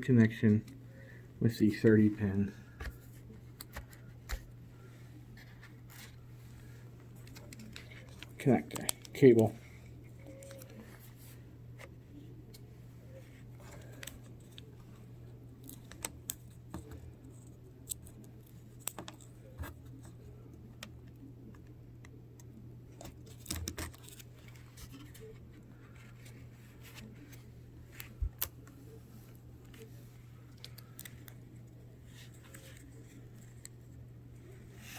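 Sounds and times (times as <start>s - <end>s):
steady low hum: 0.0s - 34.9s
small clicks and taps: 7.2s - 9.5s, 15.6s - 20.2s.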